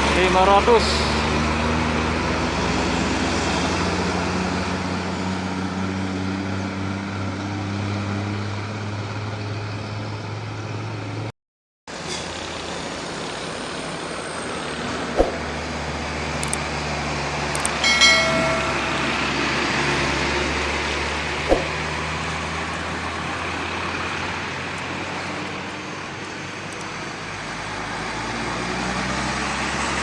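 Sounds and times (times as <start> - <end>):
road traffic noise: 0.0 - 11.3, 11.9 - 30.0
sharp knock: 15.2 - 15.5, 21.5 - 21.9.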